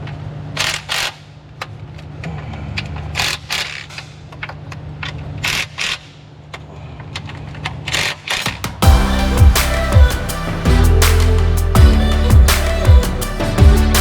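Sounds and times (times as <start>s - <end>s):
steady low hum: 8.8s - 14.0s.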